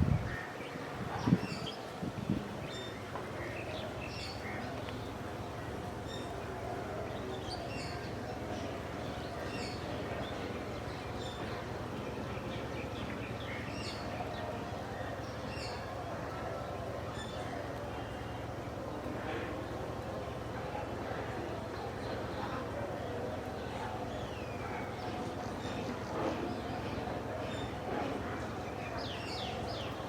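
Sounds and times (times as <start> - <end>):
outdoor background noise: 0.0 - 30.0
small birds chirping: 0.3 - 16.0.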